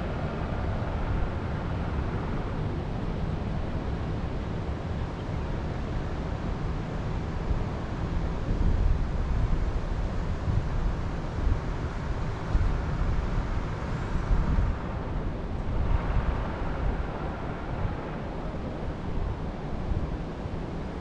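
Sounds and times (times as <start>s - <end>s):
wind gusts rumbling on microphone: 0.0s - 21.0s
wind blowing through forest: 11.6s - 21.0s.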